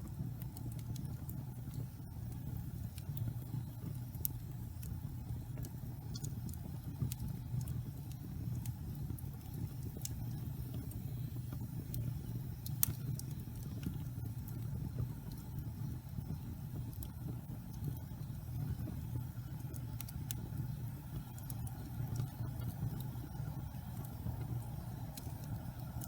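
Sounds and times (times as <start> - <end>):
fire crackling and popping: 0.0 - 26.0
fire flames rumbling: 0.0 - 26.0.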